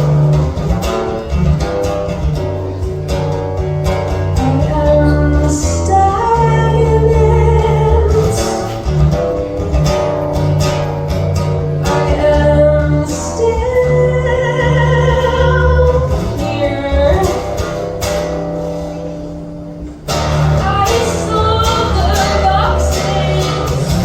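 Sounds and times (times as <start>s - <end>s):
guitar accompaniment: 0.0s - 24.0s
person singing: 4.3s - 8.8s, 11.8s - 17.8s, 20.6s - 24.0s.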